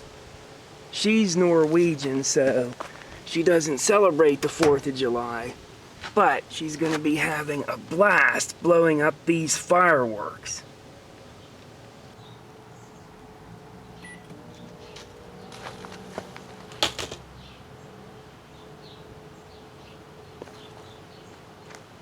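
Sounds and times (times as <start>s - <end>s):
microwave oven humming: 12.1s - 16.8s.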